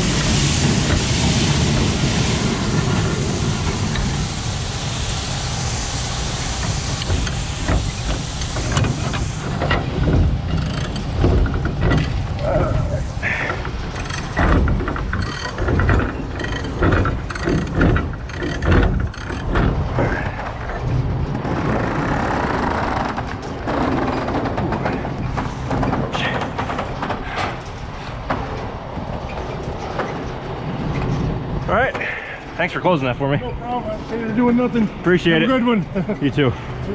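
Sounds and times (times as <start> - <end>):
hiss: 0.0 - 11.1, 11.8 - 14.4
truck engine running: 0.0 - 23.7
metallic knocks and clanks: 6.6 - 21.5.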